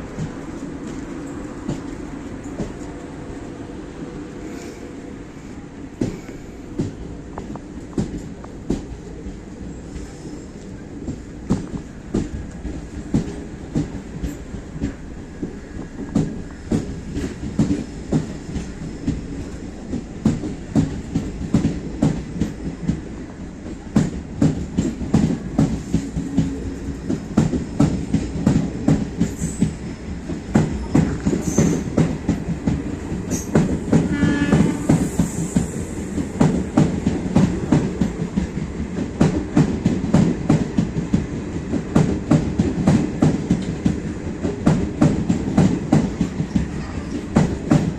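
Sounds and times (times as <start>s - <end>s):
train wheels clickety-clack: 0.0s - 47.9s.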